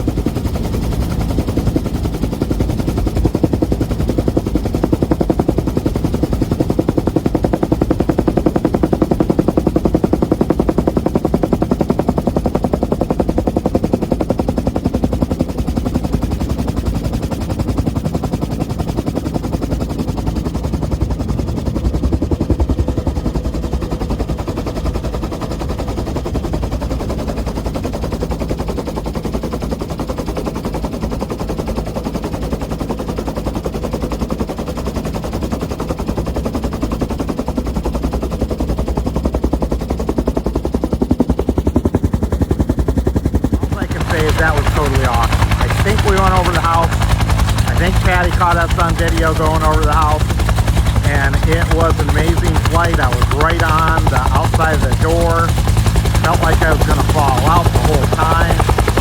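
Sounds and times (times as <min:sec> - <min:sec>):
helicopter rotor thumping: 0:00.0 - 0:59.0
turbine running: 0:43.5 - 0:59.0.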